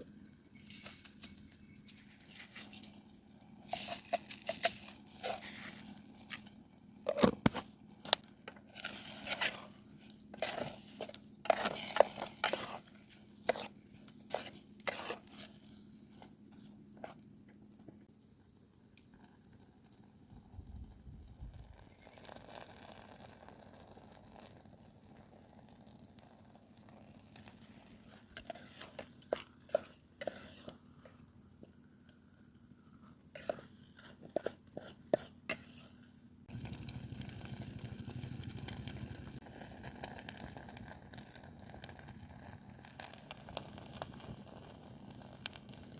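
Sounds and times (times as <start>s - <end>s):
cricket chirping in rapid trills: 0.0s - 4.6s, 15.7s - 22.4s, 23.6s - 36.5s.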